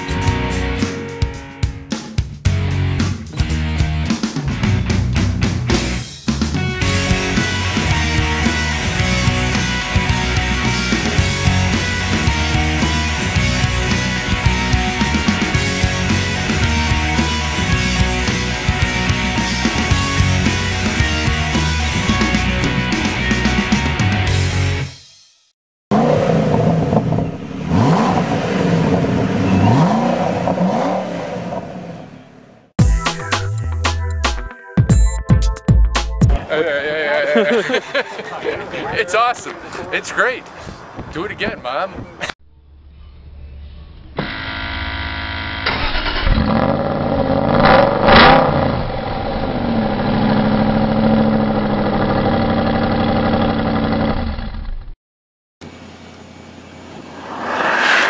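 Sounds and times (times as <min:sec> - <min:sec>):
sports car engine accelerating: 0:25.9 - 0:32.4, 0:55.6 - 0:58.0.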